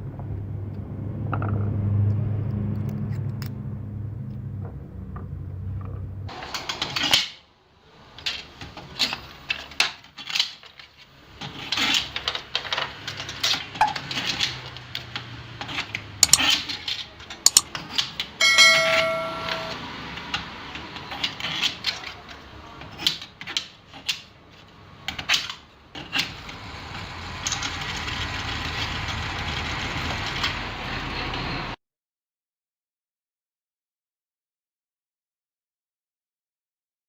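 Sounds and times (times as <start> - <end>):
low motor hum: 0.0 - 6.3
metal parts clinking: 16.2 - 16.6
ringing metallic tone: 18.4 - 20.1.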